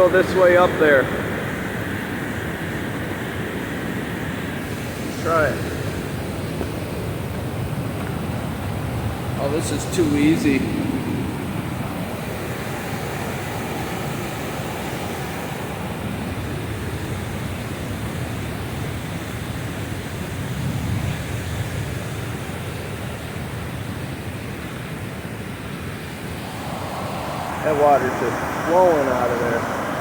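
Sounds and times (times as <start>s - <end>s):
water rushing from spillway: 4.5s - 24.0s, 26.1s - 30.0s.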